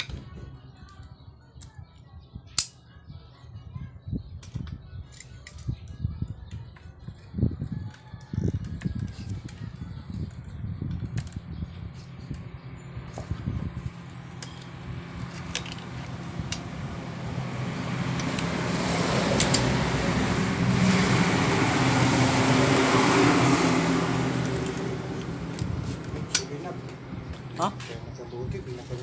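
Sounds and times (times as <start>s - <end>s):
motor vehicle passing by: 8.0s - 29.0s.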